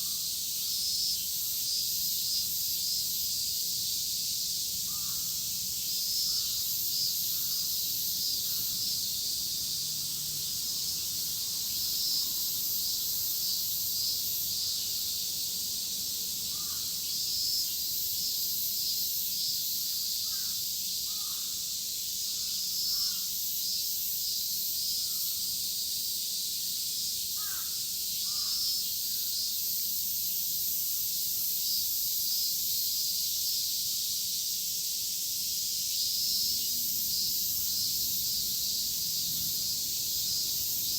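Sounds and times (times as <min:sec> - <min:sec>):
cicadas buzzing: 0:00.0 - 0:40.9
crows cawing: 0:04.9 - 0:05.4, 0:16.5 - 0:16.9, 0:20.3 - 0:21.5, 0:27.4 - 0:28.6.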